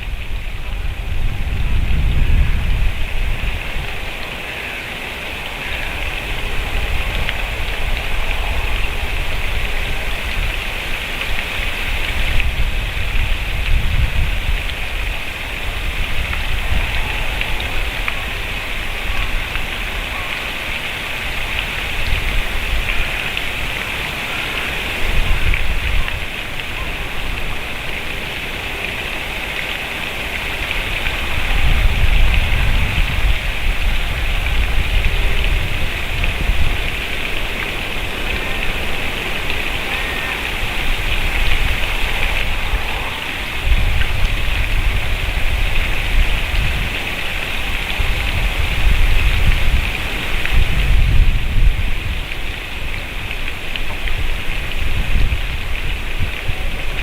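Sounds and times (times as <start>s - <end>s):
outdoor noise hiss: 0.0s - 57.0s
low rumbling surges: 30.3s - 47.0s.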